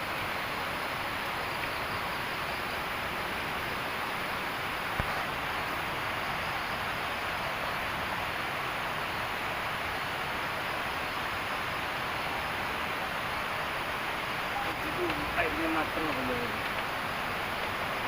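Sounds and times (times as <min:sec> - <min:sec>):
water rushing: 0:00.0 - 0:18.0.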